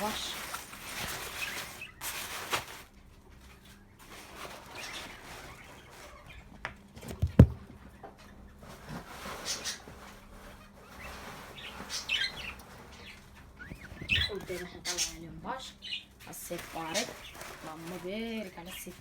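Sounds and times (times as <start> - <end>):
birds chirping: 0.0 - 19.0
loud knock: 7.2 - 7.7.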